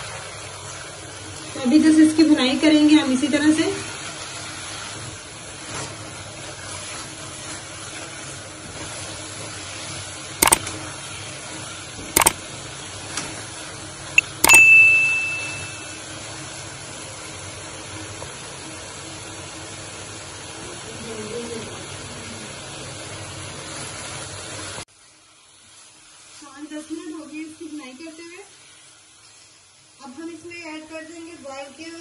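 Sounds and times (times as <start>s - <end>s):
carrots sizzling in a wok: 0.0s - 32.0s
sharp clicks: 10.4s - 10.6s, 12.2s - 12.4s, 14.2s - 14.7s
bell ding: 14.2s - 16.1s.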